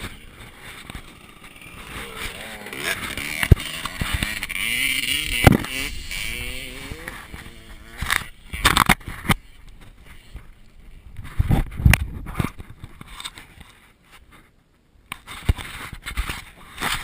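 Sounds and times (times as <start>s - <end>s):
dirt bike engine revving: 0.0s - 9.5s
scrapes: 0.0s - 14.6s.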